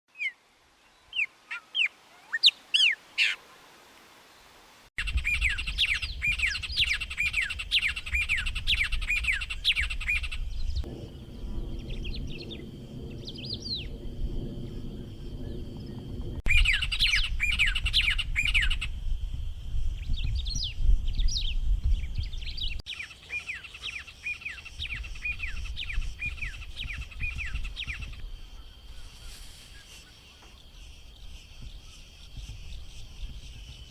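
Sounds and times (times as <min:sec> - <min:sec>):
birds singing sharp notes: 0:05.0 - 0:14.1, 0:14.7 - 0:19.0
low rumble: 0:09.5 - 0:17.8.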